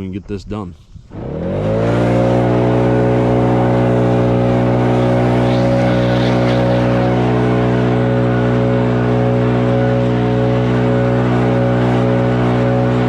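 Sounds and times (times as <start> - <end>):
small motor running: 2.4 - 9.9.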